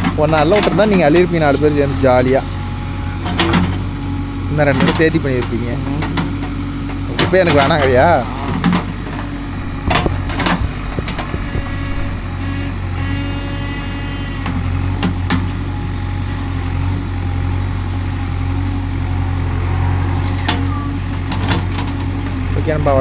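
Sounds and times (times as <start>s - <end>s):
heavy diesel engine running: 0.0s - 20.0s
engine whine: 0.0s - 22.0s
sharp knocks: 9.2s - 12.5s.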